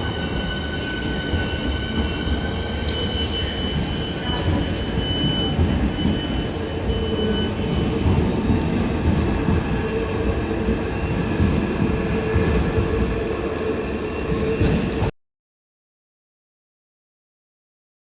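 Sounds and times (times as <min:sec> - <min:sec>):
high wheel squeal: 0:00.0 - 0:08.0
train rumbling: 0:00.0 - 0:15.1.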